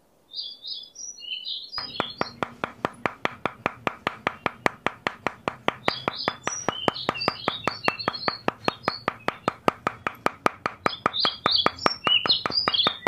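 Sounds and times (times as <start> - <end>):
birds chirping: 0.4 - 13.0
hammer tapping wooden sticks: 1.8 - 13.0.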